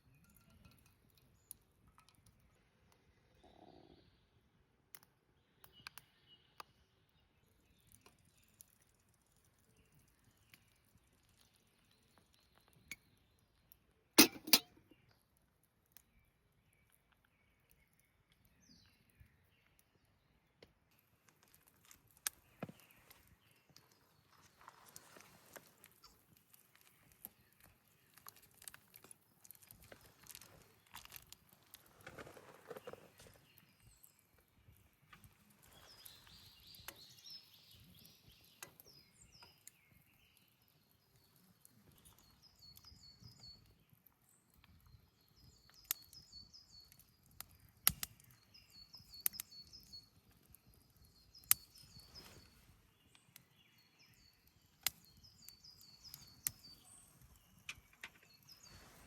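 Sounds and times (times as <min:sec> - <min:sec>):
small bird chirping: 0:21.5 - 0:59.0.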